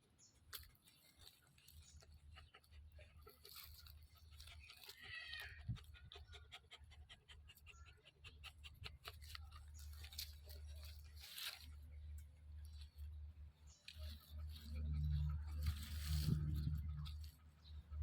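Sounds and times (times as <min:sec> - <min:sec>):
dog panting: 0:05.6 - 0:09.8.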